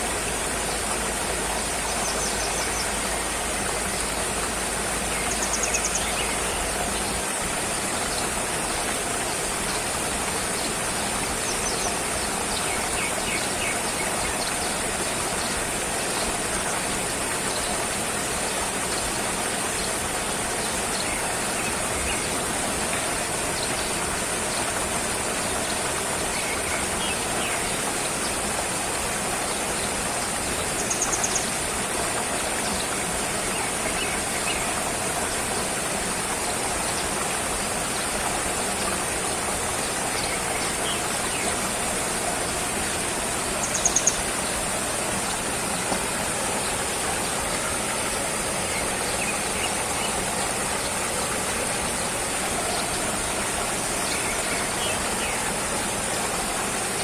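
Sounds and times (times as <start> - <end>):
constant high hiss: 0.0 - 57.0.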